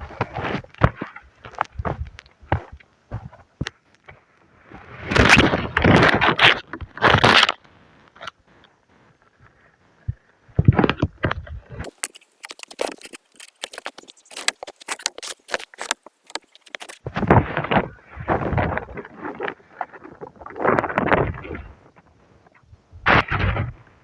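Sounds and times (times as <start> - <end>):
sharp clicks and crackles: 10.6 - 17.1
gear rustling and scraping: 11.8 - 19.6.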